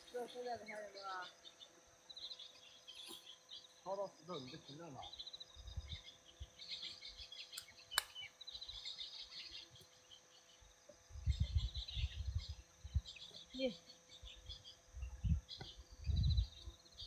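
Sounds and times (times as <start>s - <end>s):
birds chirping faintly: 0.0s - 17.0s
sharp click: 7.5s - 8.2s.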